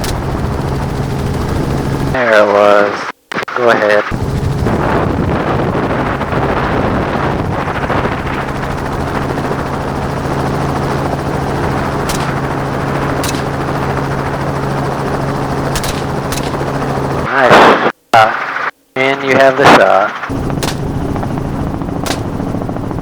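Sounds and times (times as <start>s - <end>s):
steady low hum: 0.0s - 2.2s, 4.2s - 17.3s, 20.3s - 23.0s
helicopter rotor and engine: 0.0s - 3.0s, 3.8s - 17.5s, 19.4s - 23.0s.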